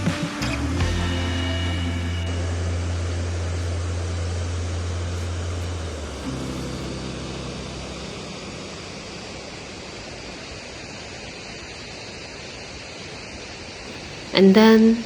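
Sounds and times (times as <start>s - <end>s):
low hum: 1.2s - 12.0s.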